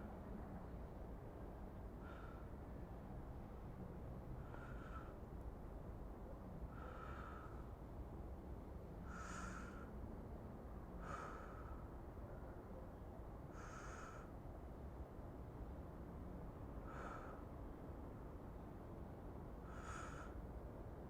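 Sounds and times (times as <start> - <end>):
faint low hum: 0.0 - 21.0
person breathing softly: 1.8 - 2.9, 4.4 - 5.8, 6.6 - 8.2, 9.0 - 10.1, 10.8 - 12.4, 13.4 - 14.6, 16.7 - 17.6, 19.6 - 20.6.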